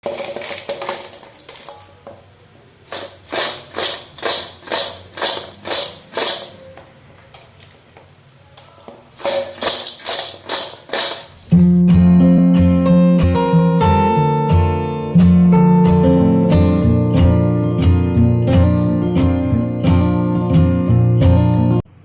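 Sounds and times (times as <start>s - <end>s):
acoustic guitar strumming: 9.2s - 21.9s.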